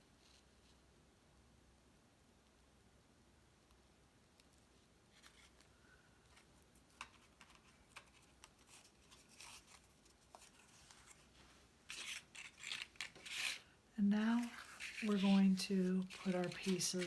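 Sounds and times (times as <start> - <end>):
paper rustle: 5.1 - 17.0.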